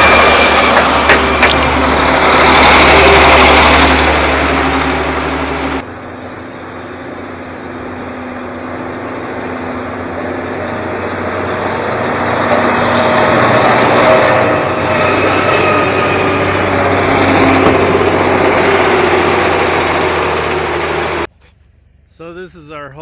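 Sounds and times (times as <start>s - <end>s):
heavy diesel machinery running: 0.0s - 21.3s.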